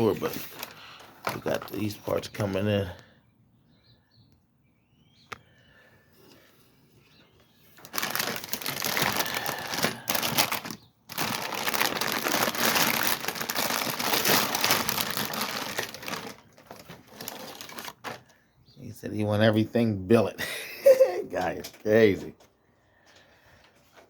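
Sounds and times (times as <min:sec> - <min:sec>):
packaging crinkling and rustling: 0:00.0 - 0:02.2, 0:07.7 - 0:18.4.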